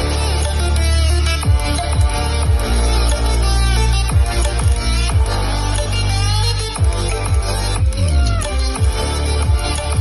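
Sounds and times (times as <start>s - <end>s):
electronic dance music: 0.0s - 10.0s
booming kick drum: 1.4s - 2.7s.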